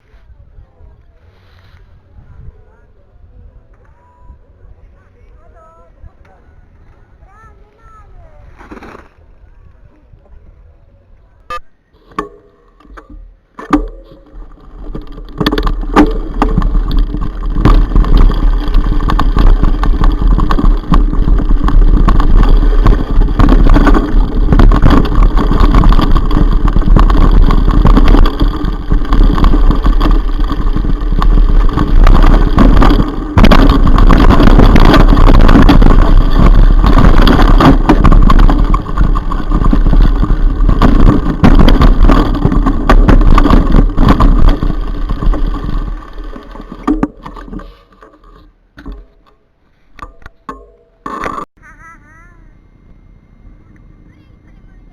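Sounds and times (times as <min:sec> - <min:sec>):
wind rumbling over microphone: 0:00.0 - 0:11.1, 0:13.8 - 0:48.4
mountain bike rattling over rough ground: 0:11.8 - 0:51.5.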